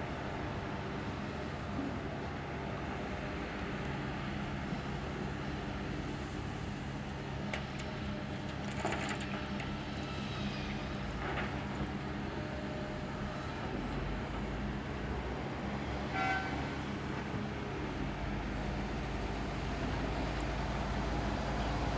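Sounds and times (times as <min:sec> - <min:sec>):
heavy diesel engines running: 0:10.2 - 0:21.9.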